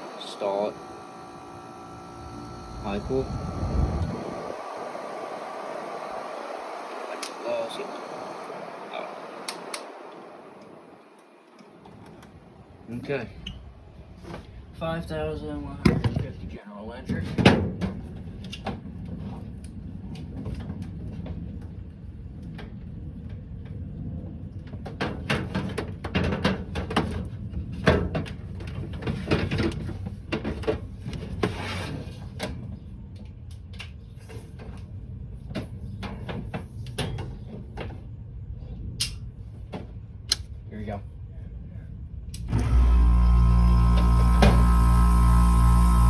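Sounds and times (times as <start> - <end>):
steady low hum: 0.0 - 15.8, 41.4 - 46.0.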